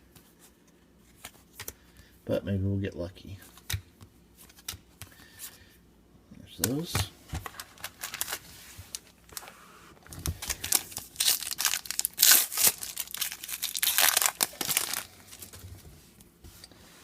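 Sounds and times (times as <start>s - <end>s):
card pack wrapper crinkling: 7.4s - 9.4s, 10.1s - 15.6s.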